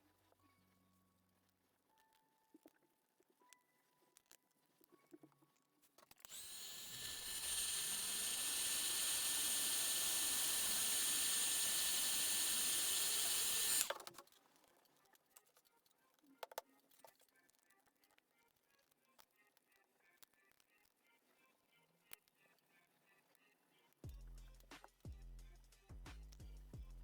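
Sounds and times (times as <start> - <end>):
small motorised tool whining: 6.1 - 14.4.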